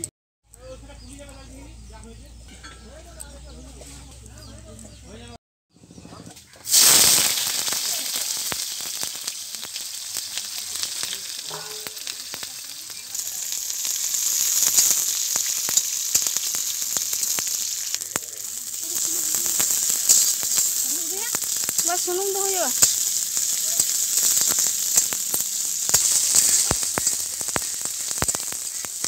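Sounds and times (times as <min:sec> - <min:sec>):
onions sizzling in hot oil: 0:06.6 - 0:29.0
metal spatula stirring: 0:09.7 - 0:18.0, 0:22.7 - 0:29.0.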